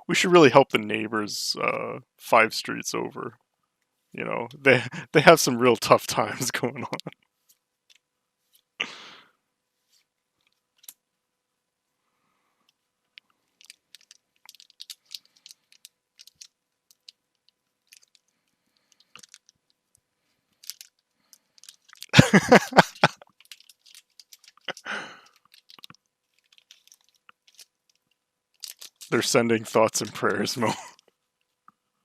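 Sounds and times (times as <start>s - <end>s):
foil wrappers crinkling: 22.8s - 28.0s, 28.6s - 29.1s.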